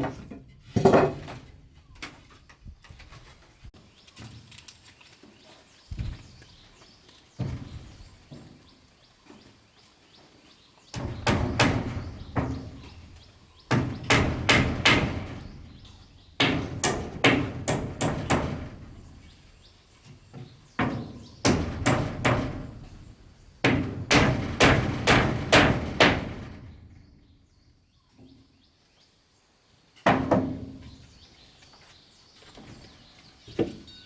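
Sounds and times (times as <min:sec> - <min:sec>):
hand tool striking wood: 0:10.9 - 0:19.3, 0:20.4 - 0:26.6.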